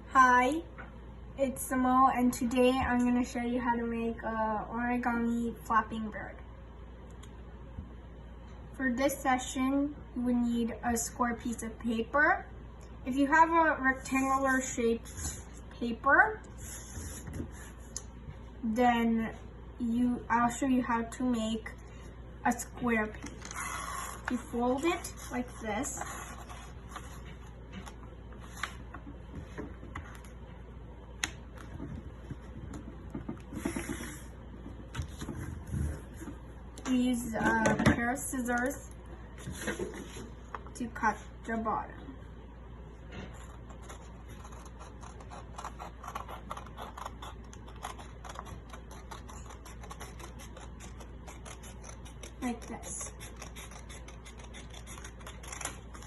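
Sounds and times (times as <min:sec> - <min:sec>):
paper being folded and creased: 0:23.3 - 0:29.0, 0:43.2 - 0:56.0.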